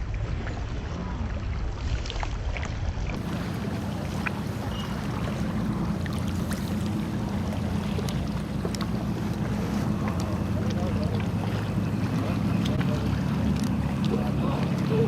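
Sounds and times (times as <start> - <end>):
water splashing and dripping: 0.0 - 15.0
steady low drone: 3.2 - 15.0.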